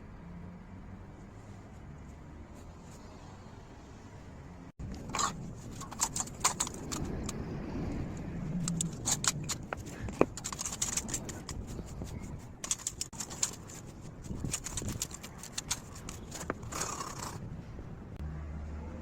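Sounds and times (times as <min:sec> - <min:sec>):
metal clinks and scrapes: 0:04.8 - 0:07.4, 0:08.4 - 0:17.4.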